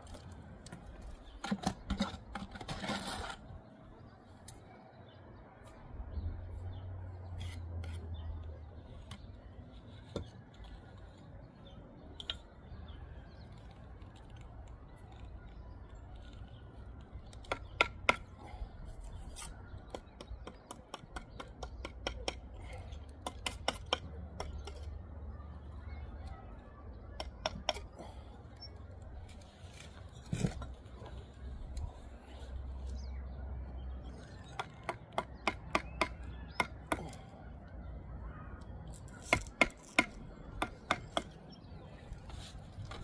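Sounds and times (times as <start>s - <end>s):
trowel tapping and scraping brick: 17.3s - 18.3s, 19.2s - 24.9s, 27.2s - 27.9s, 34.3s - 37.2s, 39.0s - 41.4s.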